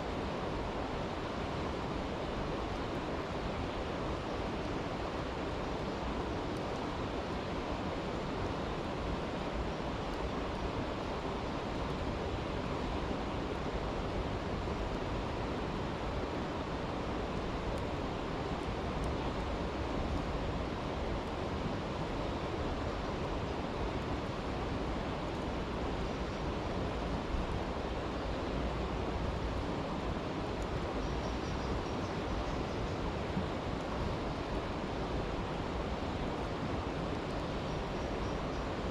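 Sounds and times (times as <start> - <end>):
campfire crackling: 15.9 - 25.8.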